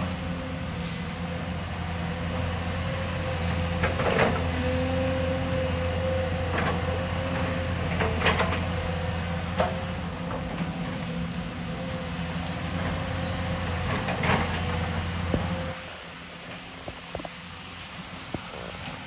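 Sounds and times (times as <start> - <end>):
excavator engine whining: 0.0 - 19.0.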